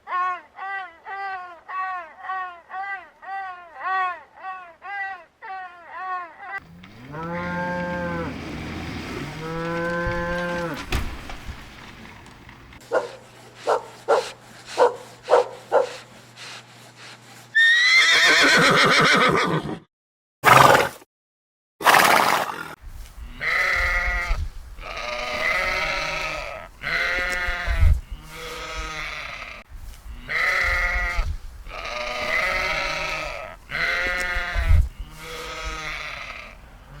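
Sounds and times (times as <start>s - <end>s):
farm animal calls: 6.6s - 11.5s, 12.8s - 19.7s, 22.5s - 37.0s.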